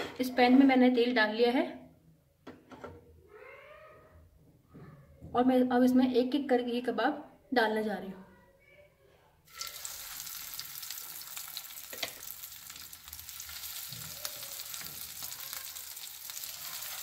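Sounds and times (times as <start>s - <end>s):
food sizzling in hot oil: 9.5s - 17.0s.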